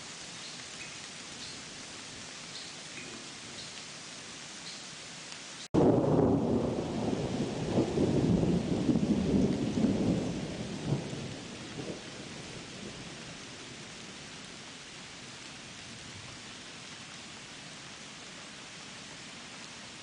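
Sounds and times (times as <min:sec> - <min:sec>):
steady rain: 0:00.0 - 0:20.0
thunder rolling: 0:05.8 - 0:12.0.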